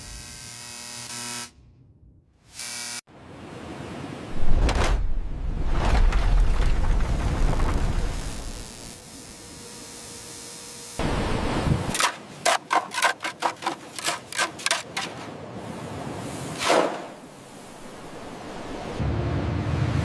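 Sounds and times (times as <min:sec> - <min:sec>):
swish: 0:16.4 - 0:17.2.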